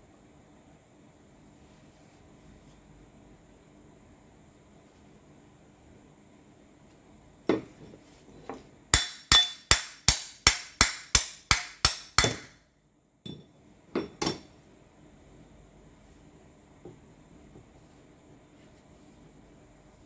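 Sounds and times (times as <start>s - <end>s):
hammer striking metal: 9.0s - 12.6s.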